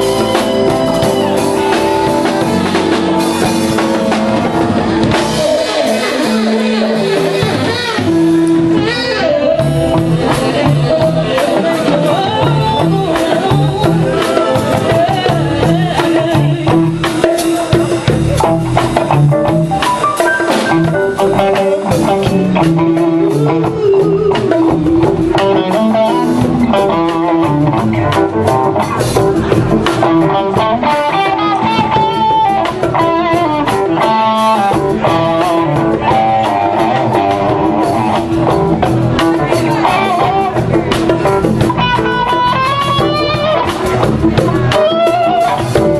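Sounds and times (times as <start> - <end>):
band playing instrumental: 0.0 - 45.9
guitar lines: 0.0 - 45.9.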